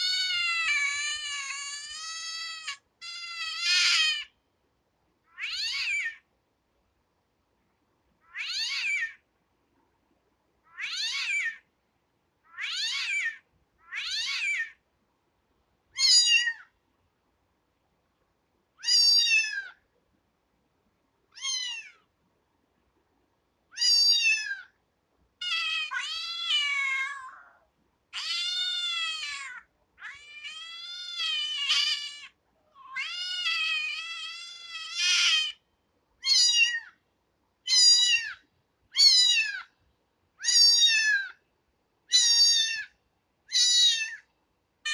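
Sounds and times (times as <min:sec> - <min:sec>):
kitten meowing: 0:00.0 - 0:04.3, 0:05.3 - 0:06.2, 0:08.3 - 0:09.2, 0:10.7 - 0:11.6, 0:12.5 - 0:14.8, 0:16.0 - 0:16.7, 0:18.8 - 0:19.8, 0:21.3 - 0:22.0, 0:23.7 - 0:24.7, 0:25.4 - 0:27.6, 0:28.2 - 0:35.6, 0:36.2 - 0:37.0, 0:37.7 - 0:39.7, 0:40.4 - 0:41.4, 0:42.1 - 0:42.9, 0:43.5 - 0:44.3.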